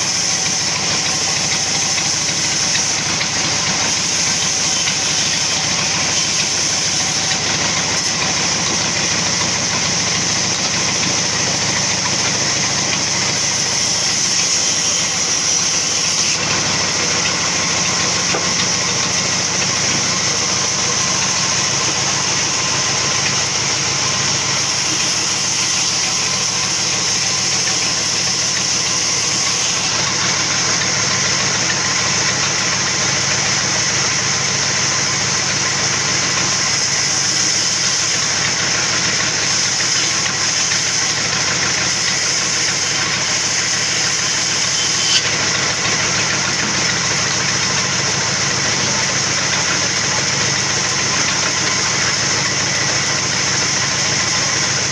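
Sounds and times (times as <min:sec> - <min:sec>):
sawmill machinery drone: 0:00.0 - 0:54.9.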